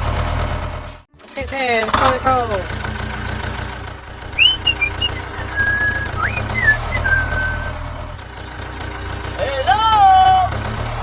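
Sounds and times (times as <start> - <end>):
low motor hum: 0.0 - 11.0
whistled notes: 4.3 - 7.9.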